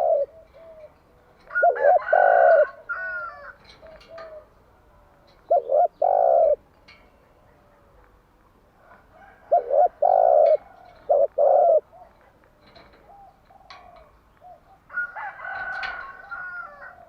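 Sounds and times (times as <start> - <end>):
dove cooing: 0.0 - 6.7, 8.7 - 17.0.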